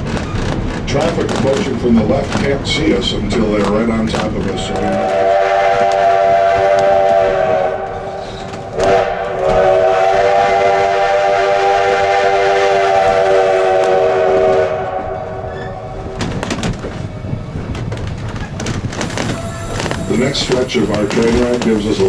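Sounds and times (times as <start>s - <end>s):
train running noise: 0.0s - 22.0s
steam locomotive chime whistle: 4.9s - 15.9s.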